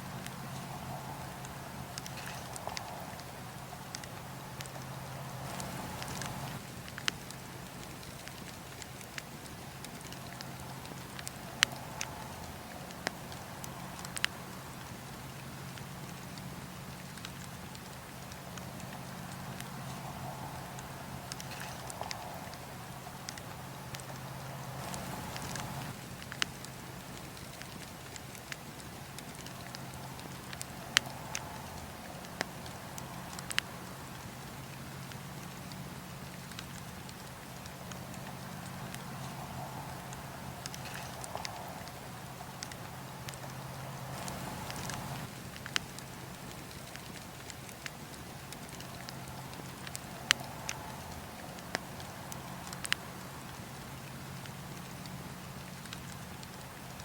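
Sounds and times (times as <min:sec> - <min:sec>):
campfire crackling and popping: 0:00.0 - 0:57.0
low steady background: 0:00.0 - 0:57.0
fire hissing: 0:00.1 - 0:06.6, 0:18.6 - 0:27.1, 0:37.7 - 0:46.6.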